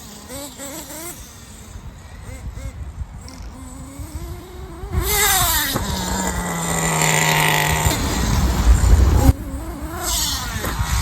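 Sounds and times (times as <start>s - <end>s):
nitro engine revving: 0.0s - 11.0s
low rumble: 7.2s - 10.0s.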